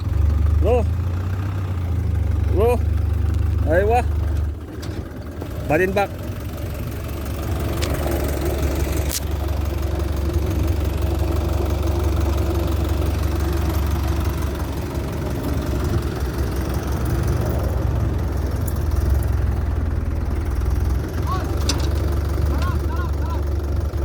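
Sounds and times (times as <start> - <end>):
large engine idling: 0.0 - 24.0.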